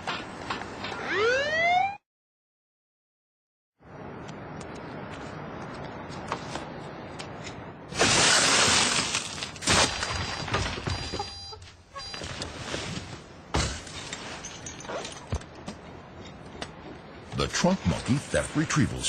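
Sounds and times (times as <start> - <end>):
glass shattering: 8.0 - 11.1, 13.6 - 15.4.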